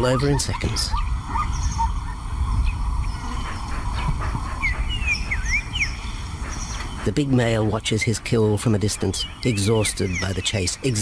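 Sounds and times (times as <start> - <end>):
birds chirping: 0.0 - 11.0
steady low rumble: 0.0 - 11.0.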